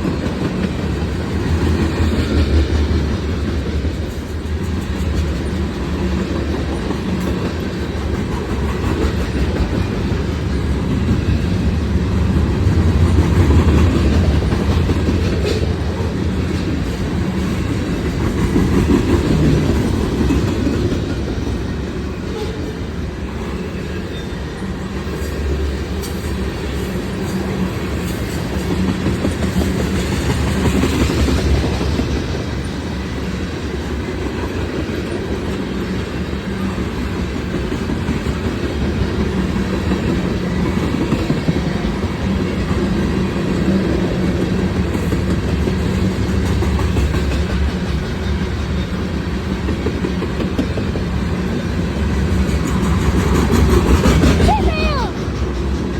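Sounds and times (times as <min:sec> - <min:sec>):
clickety-clack over rail joints: 0:00.0 - 0:55.9
train wheels rumbling on rails: 0:00.0 - 0:55.9.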